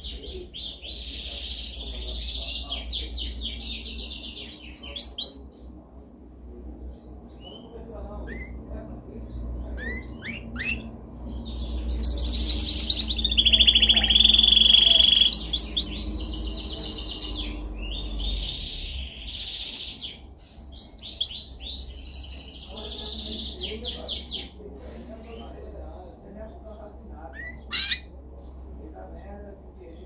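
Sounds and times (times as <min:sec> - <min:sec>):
canary singing trills: 0:00.0 - 0:05.8, 0:06.7 - 0:24.6, 0:25.2 - 0:28.7.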